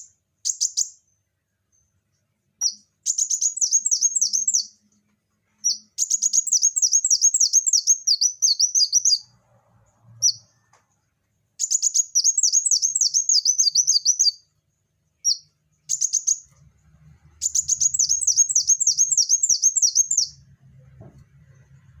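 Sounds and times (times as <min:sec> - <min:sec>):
sunbird chirping: 0:00.0 - 0:04.8, 0:05.6 - 0:09.3, 0:11.6 - 0:14.5, 0:15.2 - 0:16.5, 0:17.3 - 0:20.5.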